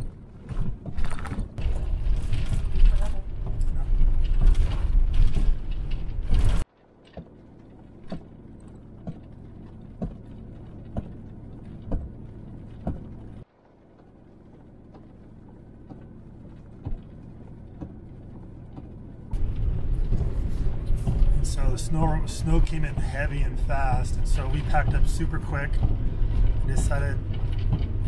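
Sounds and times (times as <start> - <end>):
van engine and road rumble: 0.0 - 28.0
windshield wiper knocks: 10.9 - 11.2, 11.8 - 12.1.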